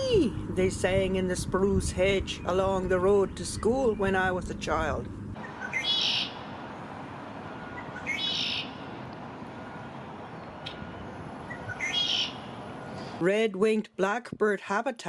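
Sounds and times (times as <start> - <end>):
blackbird singing: 0.0 - 6.4, 7.7 - 8.8, 10.2 - 13.2.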